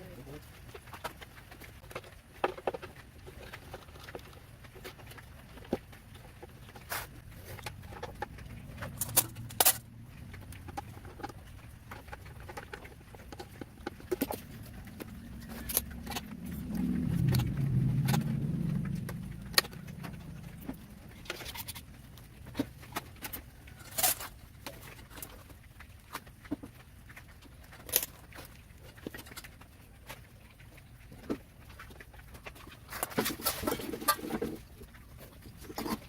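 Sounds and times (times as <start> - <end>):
low rumble: 7.2 - 12.0, 13.8 - 23.0.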